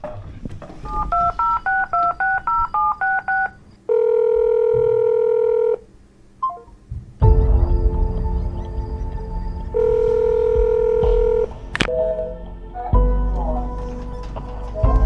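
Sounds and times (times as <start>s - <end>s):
keypad dialing beeps: 0.9s - 5.7s
steady telephone tone: 0.9s - 5.9s, 9.8s - 12.3s.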